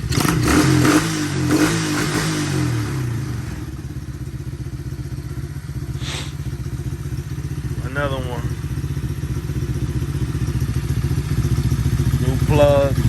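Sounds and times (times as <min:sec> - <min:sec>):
small engine revving and idling: 0:00.0 - 0:13.0.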